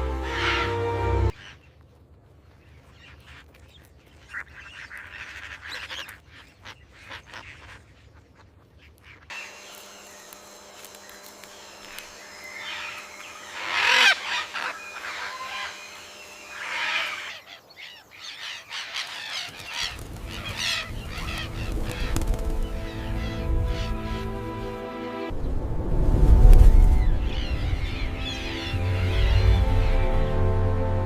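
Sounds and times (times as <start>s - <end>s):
bird squawks: 0.2s - 1.7s, 4.2s - 10.3s, 11.0s - 24.3s
soft background music: 20.0s - 31.0s.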